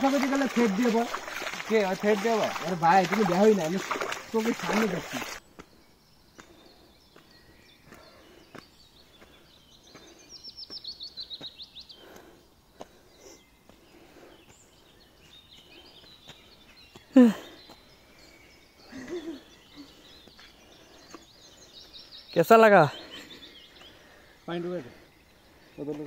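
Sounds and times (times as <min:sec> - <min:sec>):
footsteps on dirt trail: 0:00.0 - 0:05.8, 0:06.4 - 0:12.2
faint bird chirps: 0:03.8 - 0:26.0.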